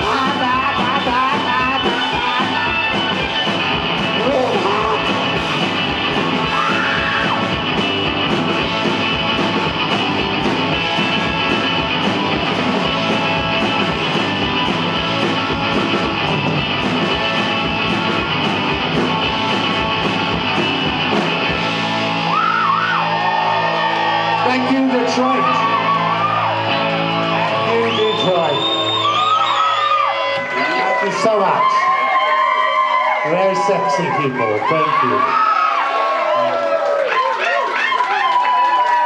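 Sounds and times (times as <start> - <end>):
steady drum beat: 0.0 - 28.6
electric guitar: 0.0 - 37.0.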